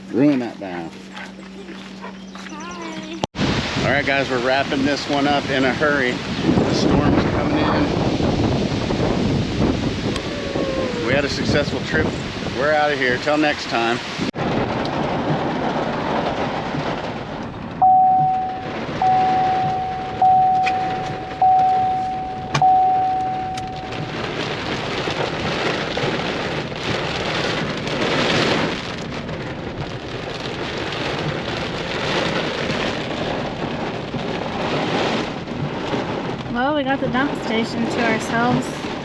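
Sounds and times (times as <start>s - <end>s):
heavy rain pouring: 0.0s - 39.0s
electronic chime: 17.8s - 24.3s.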